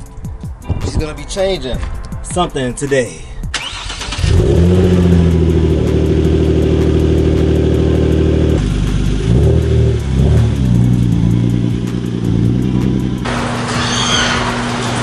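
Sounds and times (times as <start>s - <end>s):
car engine idling and revving: 3.6s - 13.7s.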